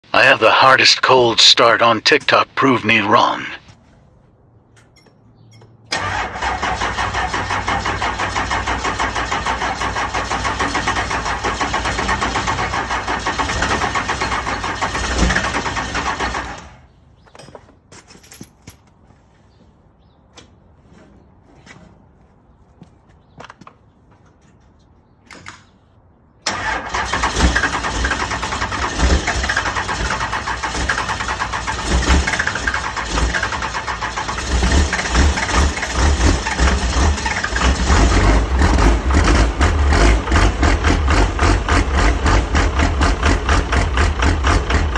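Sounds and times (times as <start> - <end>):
car engine starting and running: 5.9 - 17.0, 26.4 - 44.9.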